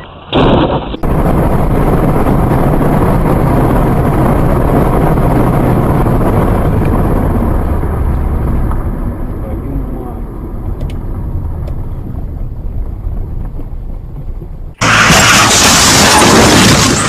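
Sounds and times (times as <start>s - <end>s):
loud burst: 0.0s - 9.4s, 14.8s - 17.0s
road and wind noise: 0.0s - 17.0s.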